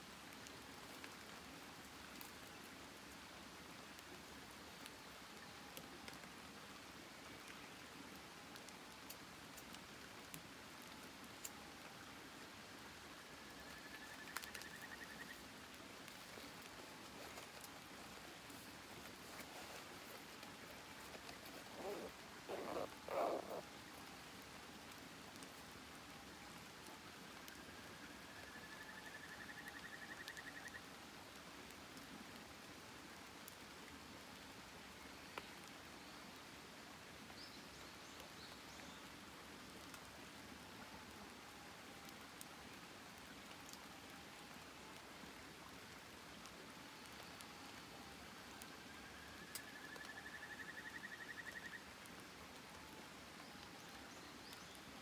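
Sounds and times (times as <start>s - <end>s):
campfire hissing and popping: 14.1s - 26.9s.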